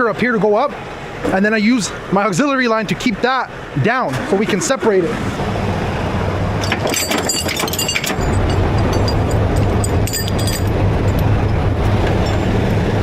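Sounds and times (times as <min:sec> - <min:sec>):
diesel truck engine under load: 0:00.0 - 0:13.0
metallic chain clinks: 0:06.6 - 0:12.6.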